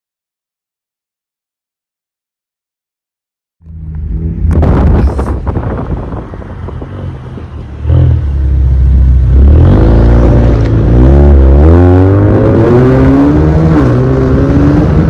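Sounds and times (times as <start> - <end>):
car engine revving: 3.7 - 15.0.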